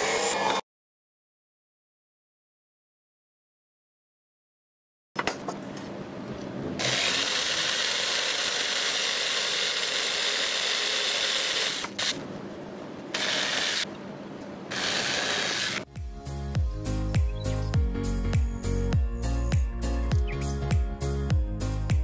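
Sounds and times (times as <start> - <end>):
power drill boring into wood: 6.8 - 12.1, 13.2 - 13.8, 14.7 - 15.8.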